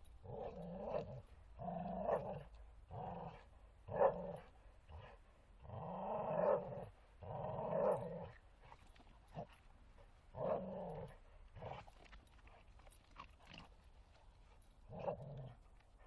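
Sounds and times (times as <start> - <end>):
dog growling: 0.2 - 8.4, 10.4 - 11.8, 14.9 - 15.6.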